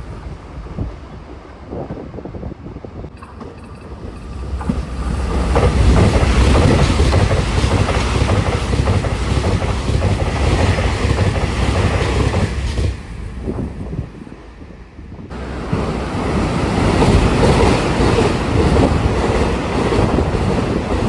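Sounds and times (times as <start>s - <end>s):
train passing with rushing rumble: 0.0s - 21.0s
train wheels clacking over rail joints: 3.2s - 14.0s, 15.6s - 21.0s.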